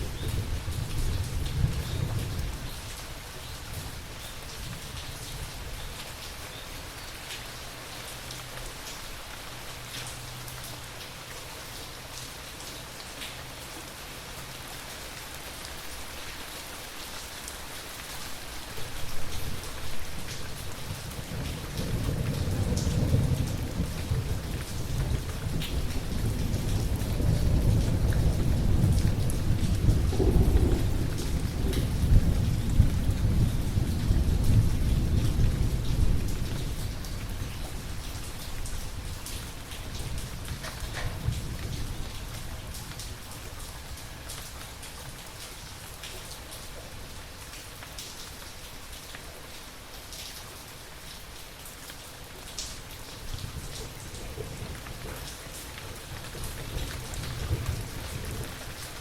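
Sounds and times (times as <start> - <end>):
low thunder rumble: 0.0 - 2.9, 20.8 - 39.1, 56.0 - 58.8
steady rain: 0.0 - 59.0
raindrops ticking: 18.8 - 48.3.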